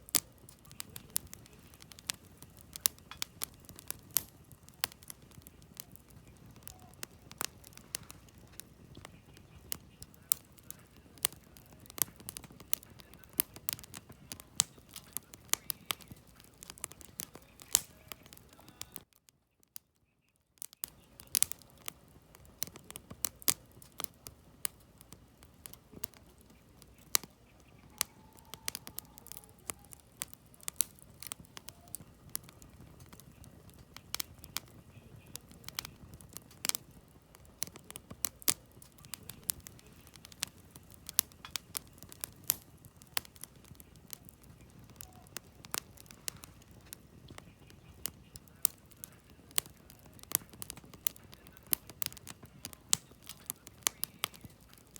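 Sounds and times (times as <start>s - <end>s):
low rush of flames: 0.0s - 19.2s, 20.6s - 54.9s
firewood crackling and popping: 0.0s - 54.9s.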